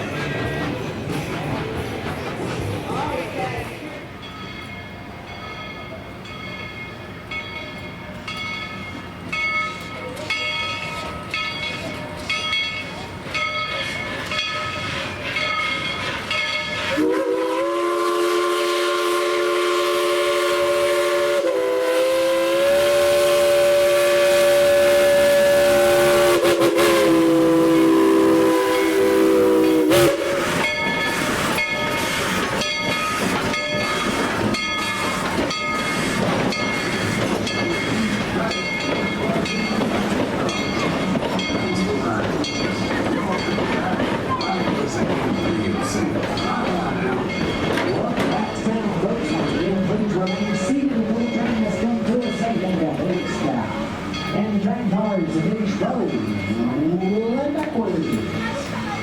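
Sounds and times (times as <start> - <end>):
train exhaust and wheel beat: 0.0 - 59.0
steam locomotive whistle: 16.8 - 34.0.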